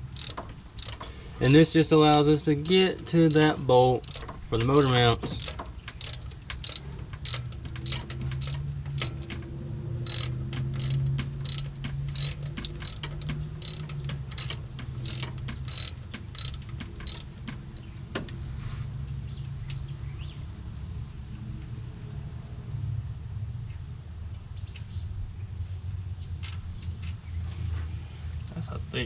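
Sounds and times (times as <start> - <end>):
ratchet wrench clicking: 0.0 - 9.4, 10.1 - 17.4.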